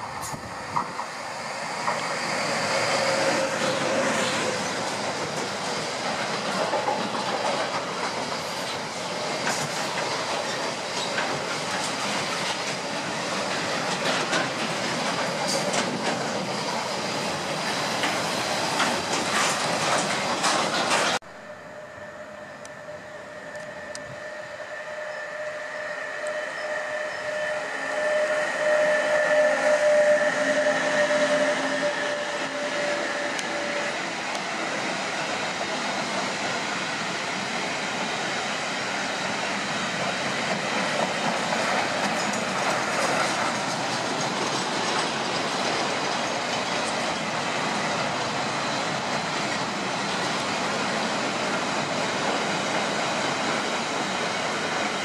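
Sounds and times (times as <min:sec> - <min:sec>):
electric train high tone: 0:00.0 - 0:55.0
wheels clattering over rail joints: 0:03.4 - 0:21.2, 0:40.0 - 0:48.4.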